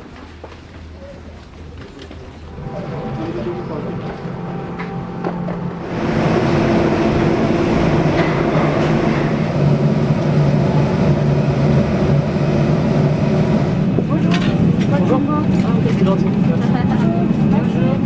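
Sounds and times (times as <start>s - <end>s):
machinery droning: 2.4s - 18.0s.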